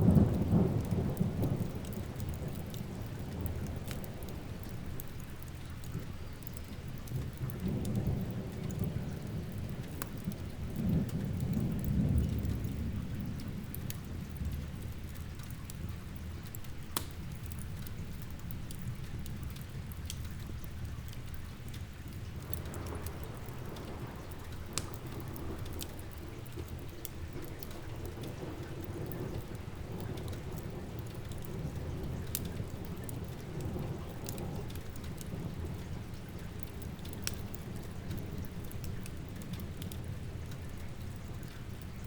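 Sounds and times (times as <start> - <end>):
rolling thunder: 0.0 - 5.1, 7.2 - 14.8, 22.2 - 40.3
crackling wood fire: 0.0 - 42.0
steady rain: 0.0 - 42.0.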